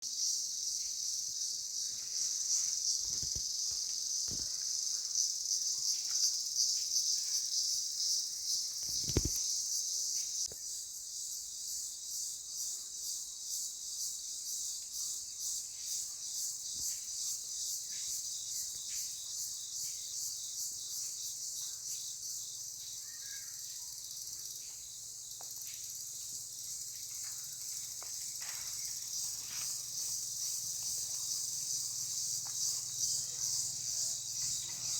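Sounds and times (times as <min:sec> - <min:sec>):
insects chirring: 0:00.0 - 0:34.9.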